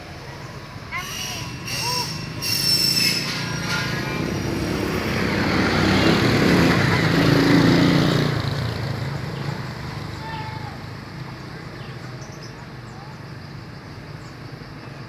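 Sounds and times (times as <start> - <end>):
motor vehicle passing by: 3.0 - 13.6.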